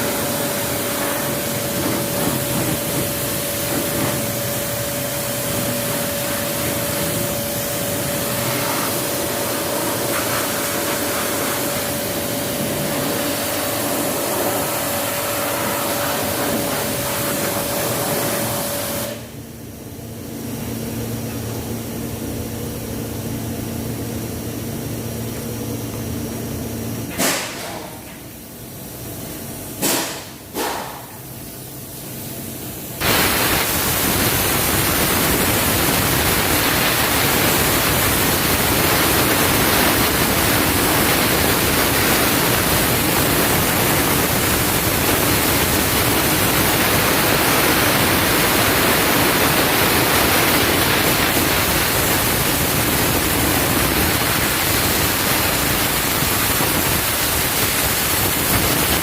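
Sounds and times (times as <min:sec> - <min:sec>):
loud rushing hiss: 0:33.0 - 0:59.0.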